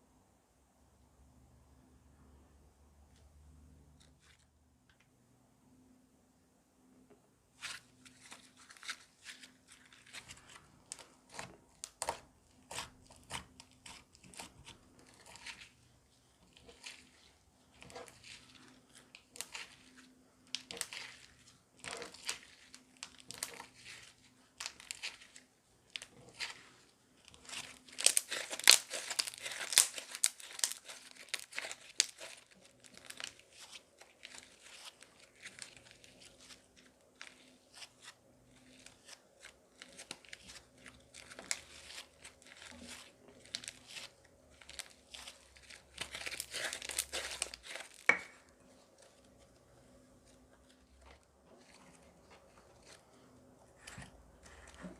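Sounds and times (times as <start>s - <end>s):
crunchy slime crackling: 7.6s - 54.9s.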